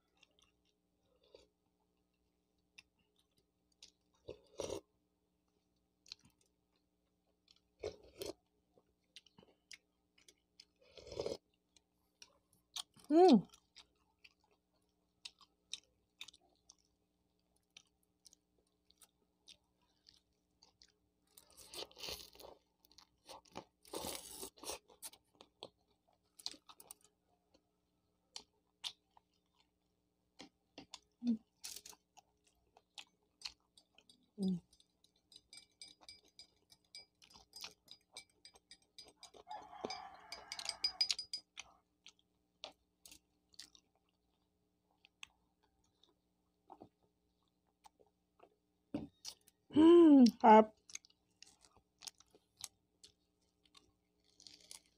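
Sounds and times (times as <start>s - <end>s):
chewing crunchy food: 0.0s - 49.7s, 50.7s - 54.9s.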